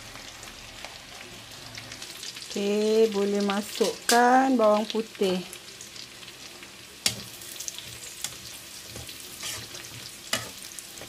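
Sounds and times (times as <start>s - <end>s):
shallots sizzling in oil: 0.0s - 11.0s
utensil scraping wok: 6.6s - 11.0s.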